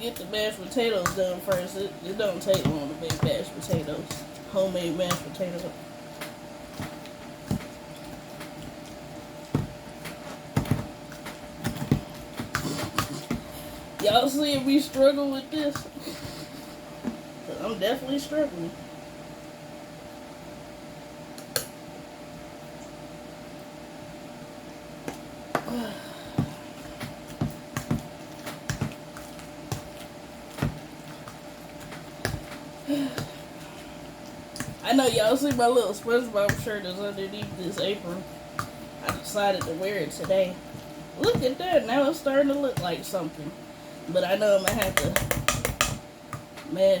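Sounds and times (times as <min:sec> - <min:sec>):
potato masher knocking pot: 0:44.6 - 0:46.5.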